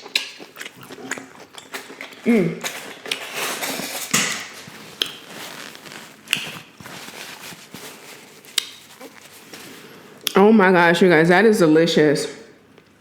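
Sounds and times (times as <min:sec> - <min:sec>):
chewing and wet mouth sounds: 0:00.0 - 0:10.4
faint crackle: 0:03.7 - 0:10.0.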